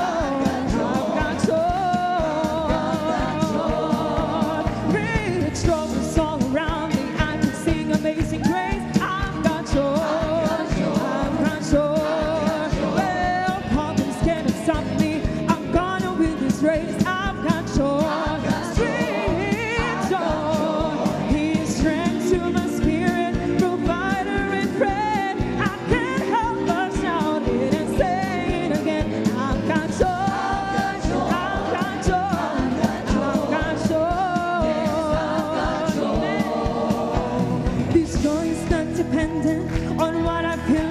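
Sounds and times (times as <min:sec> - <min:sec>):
steady drum beat: 0:00.0 - 0:40.9
worship song with band: 0:00.0 - 0:40.9.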